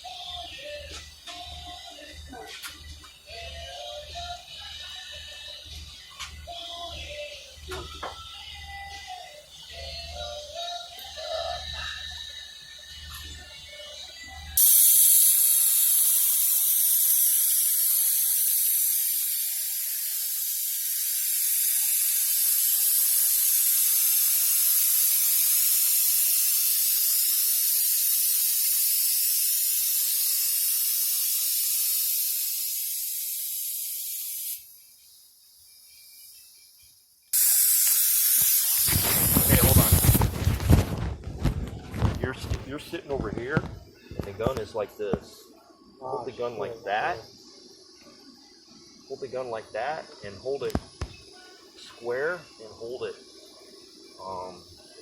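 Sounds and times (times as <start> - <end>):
paint spray gun hissing: 14.6 - 41.1.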